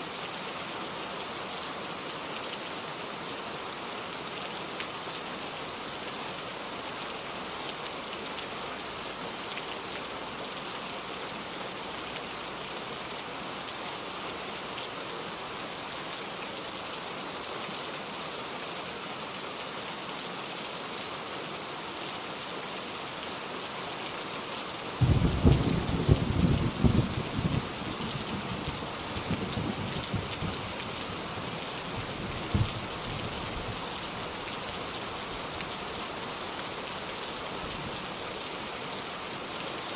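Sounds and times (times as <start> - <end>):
steady rain falling: 0.0 - 39.9
thunder clap and rumbling: 25.0 - 30.6, 32.5 - 32.8.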